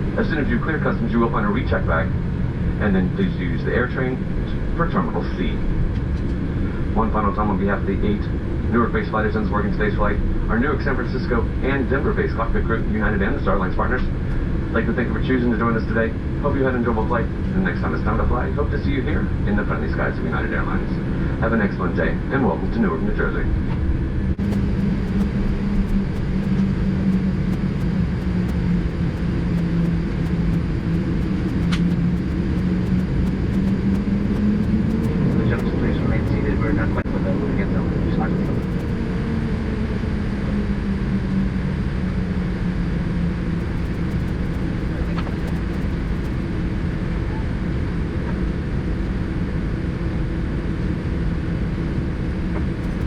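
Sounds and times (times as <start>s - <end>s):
faint steady hum: 0.0s - 48.4s, 49.0s - 53.0s
aircraft engines idling rumble: 0.0s - 53.0s
aircraft cabin rumble: 22.8s - 40.4s, 43.4s - 47.7s, 52.5s - 53.0s.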